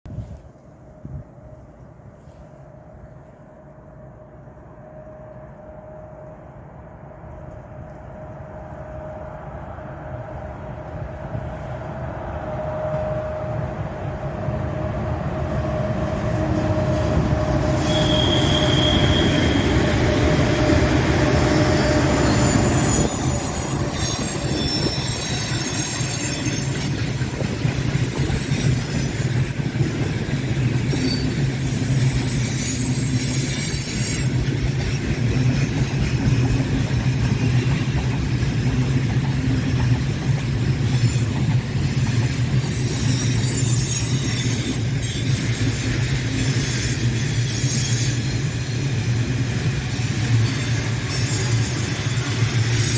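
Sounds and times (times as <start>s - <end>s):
electric locomotive hum: 0.1s - 52.9s
train wagons rumbling and clattering: 6.2s - 52.9s
high wheel squeal: 15.8s - 29.6s, 30.6s - 36.8s, 40.9s - 49.3s, 49.9s - 52.9s.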